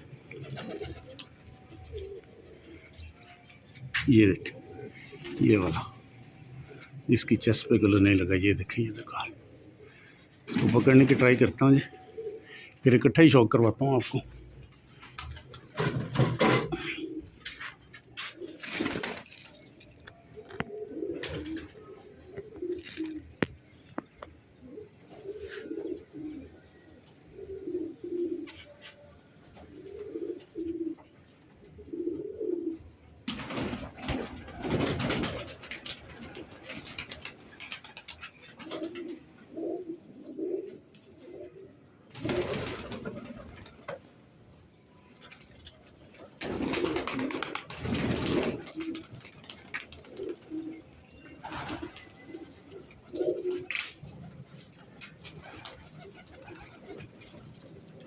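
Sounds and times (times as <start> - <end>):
pigeon cooing: 0.0 - 12.8, 14.2 - 44.1, 44.9 - 58.0.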